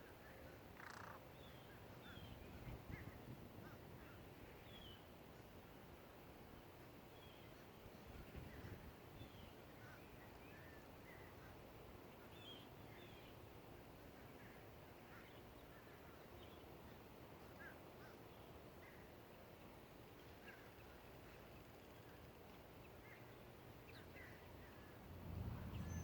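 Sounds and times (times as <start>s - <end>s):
faint bird chirps: 0.2s - 3.2s.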